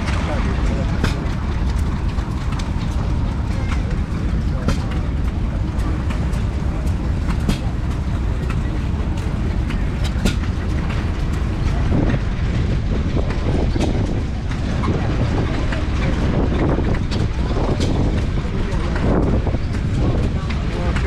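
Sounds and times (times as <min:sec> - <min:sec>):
stationary engines running: 0:00.0 - 0:21.0.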